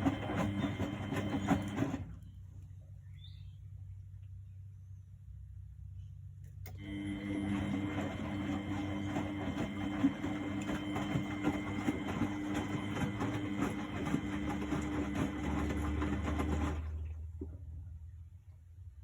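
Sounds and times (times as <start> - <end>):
washing machine motor hum: 0.0 - 2.4, 6.6 - 18.0.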